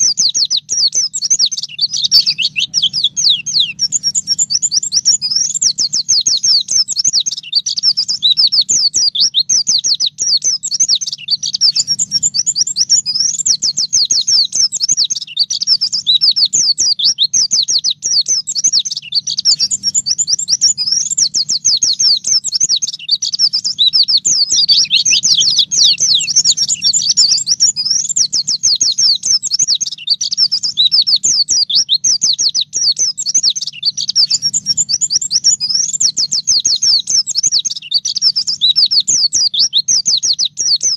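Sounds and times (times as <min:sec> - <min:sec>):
bird twittering song: 0:00.0 - 0:40.9
faint low hum: 0:00.2 - 0:07.0, 0:11.4 - 0:14.8.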